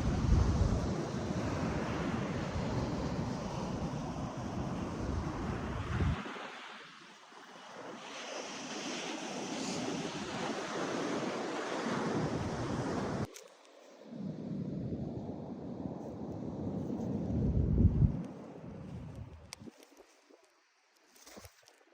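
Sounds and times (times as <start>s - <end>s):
wind buffeting microphone: 0.0s - 6.2s, 14.3s - 19.7s
ocean surf washing in: 0.0s - 13.3s.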